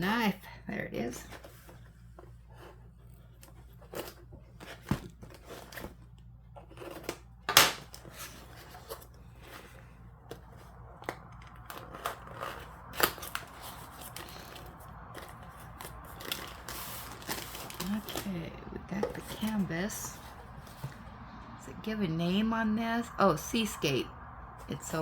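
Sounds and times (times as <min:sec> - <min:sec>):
packaging being cut and torn: 0:11.6 - 0:18.3.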